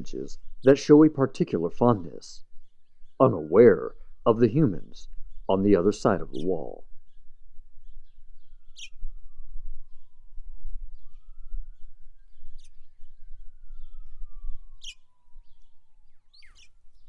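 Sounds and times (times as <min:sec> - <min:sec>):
high bird chirps: 0:02.6 - 0:09.1, 0:11.0 - 0:17.0
low rumble: 0:06.1 - 0:07.0
emergency siren wailing: 0:06.2 - 0:06.8, 0:09.0 - 0:16.5.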